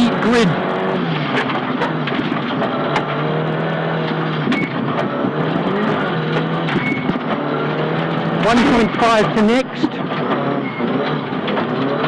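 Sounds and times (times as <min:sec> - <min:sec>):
car engine at speed: 0:00.0 - 0:12.0
sharp clicks and knocks: 0:01.0 - 0:12.0.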